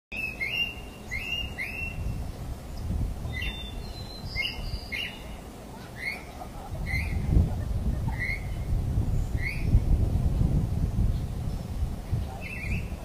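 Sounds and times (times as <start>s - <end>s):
birds chirping: 0.1s - 13.0s
steady low rumble: 1.2s - 13.0s.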